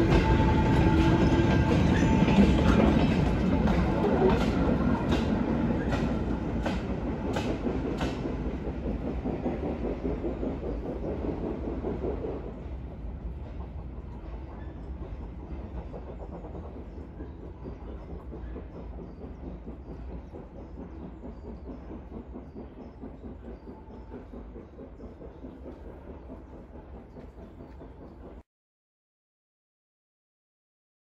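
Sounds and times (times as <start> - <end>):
wheels clicking over rail joints: 0.0 - 12.5
train low rumble: 0.0 - 28.4.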